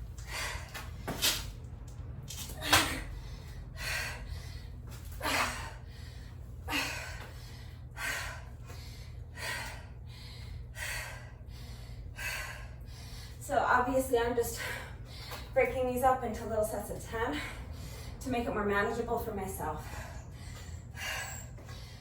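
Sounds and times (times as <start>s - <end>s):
woman breathing hard: 0.0s - 1.4s, 2.6s - 13.4s, 14.5s - 15.6s, 17.3s - 18.2s, 19.8s - 22.0s
steady low hum: 0.0s - 22.0s.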